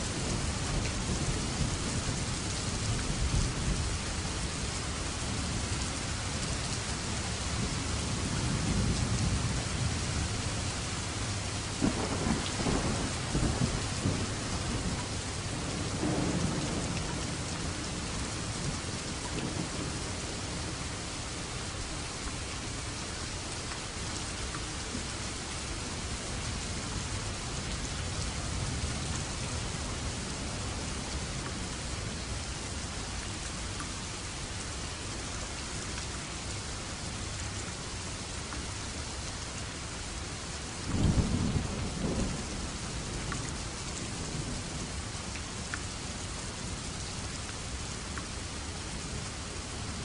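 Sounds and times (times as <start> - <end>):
heavy rain: 0.0 - 50.0
thunder rumbling: 11.8 - 18.8, 40.9 - 43.0.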